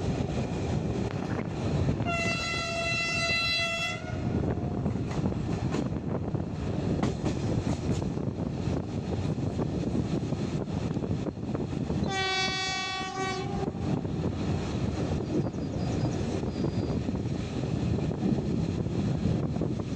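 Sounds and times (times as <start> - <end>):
wheel and rail rumble: 0.0 - 19.9
train horn blast: 2.0 - 4.4, 12.0 - 14.0.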